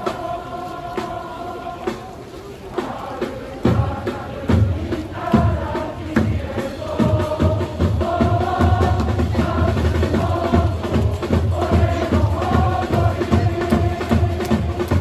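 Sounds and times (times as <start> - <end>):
crowd chanting: 0.0 - 15.0
bass drum beat: 3.7 - 15.0.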